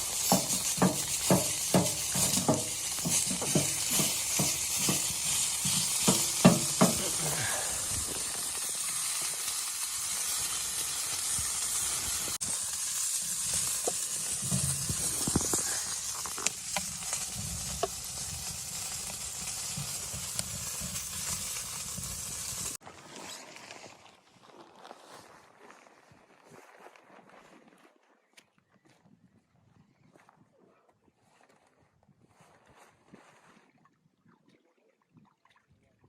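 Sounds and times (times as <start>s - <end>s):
food sizzling in a pan: 0.0s - 22.8s
utensil knocks: 0.3s - 7.2s.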